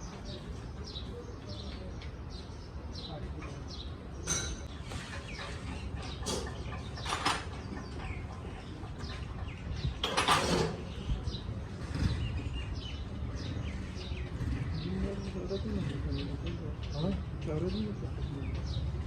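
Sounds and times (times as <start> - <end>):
birds chirping: 0.0 - 19.0
mechanical clatter: 4.3 - 12.3.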